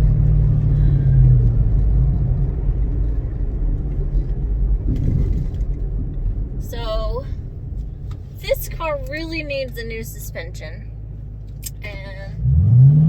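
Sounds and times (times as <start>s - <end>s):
car engine drone from inside: 0.0s - 13.0s
road rumble: 0.0s - 13.0s.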